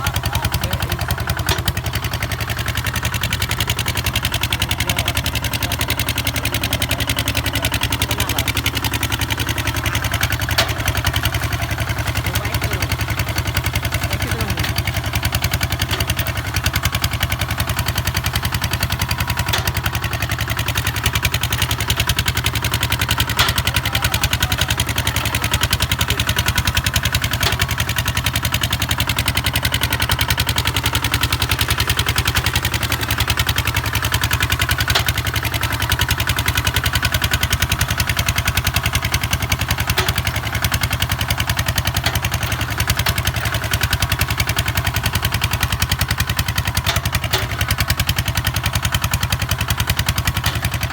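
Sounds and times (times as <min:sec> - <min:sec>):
diesel engine thumping: 0:00.0 - 0:50.9.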